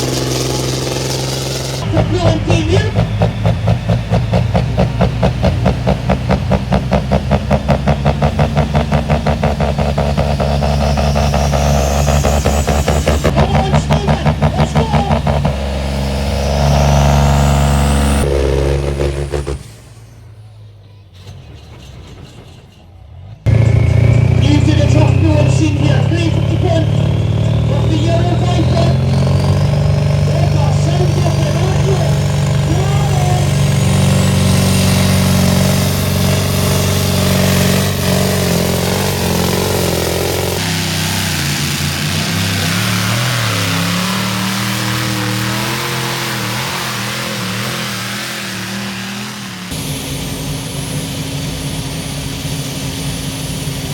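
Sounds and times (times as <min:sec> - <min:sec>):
turbo whine: 0:00.0 - 0:20.6, 0:23.5 - 0:53.9
tractor engine running flat out: 0:00.0 - 0:53.9.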